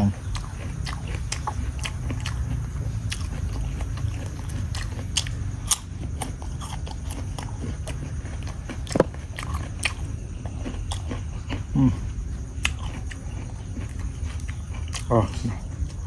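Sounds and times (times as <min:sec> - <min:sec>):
crunchy fruit chewing: 0:00.0 - 0:16.0
steady low rumble: 0:00.0 - 0:16.0.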